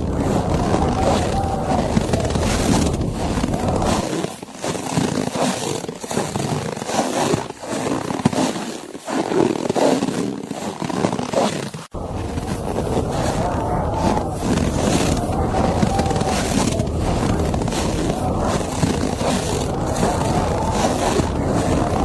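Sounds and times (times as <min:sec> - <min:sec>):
low wind rumble: 0:00.0 - 0:04.1, 0:11.9 - 0:22.0.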